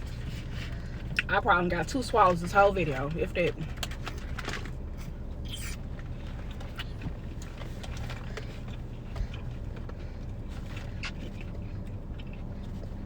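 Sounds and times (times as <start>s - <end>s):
eating crunches: 3.7s - 13.0s.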